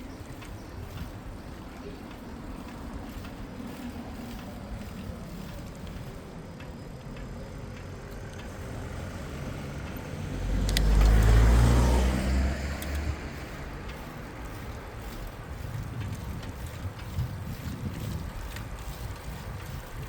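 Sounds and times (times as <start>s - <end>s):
street noise: 0.0s - 20.0s
vehicle engine passing by: 7.3s - 20.0s.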